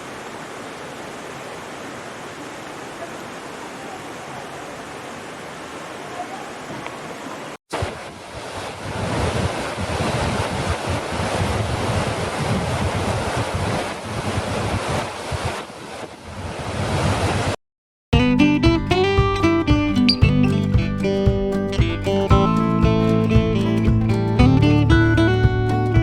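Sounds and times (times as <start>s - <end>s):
falling water rushing: 0.0s - 17.6s
wind buffeting microphone: 7.8s - 17.6s.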